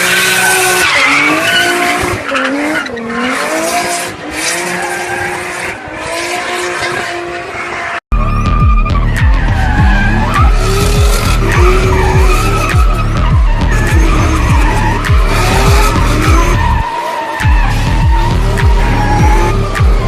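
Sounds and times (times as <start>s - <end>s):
tyres squealing: 0.0s - 20.0s
fast low beat: 8.1s - 16.8s, 17.4s - 20.0s.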